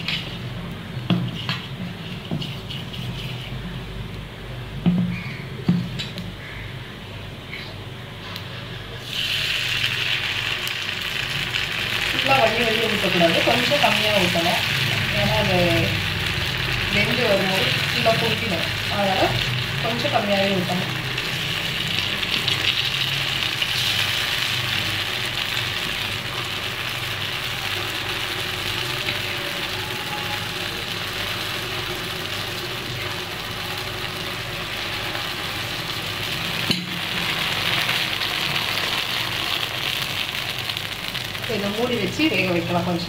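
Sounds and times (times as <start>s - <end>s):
batter sizzling in hot oil: 9.0s - 43.0s.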